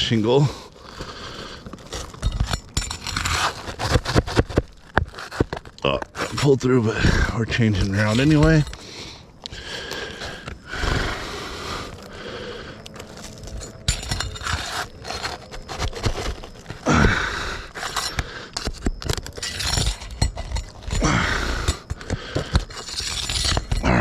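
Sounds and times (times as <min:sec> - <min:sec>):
scraping and prying at roof shingles: 0:00.1 - 0:24.0
sharp clicks and clinks: 0:01.9 - 0:04.2, 0:07.5 - 0:10.6, 0:12.8 - 0:16.9, 0:17.6 - 0:24.0.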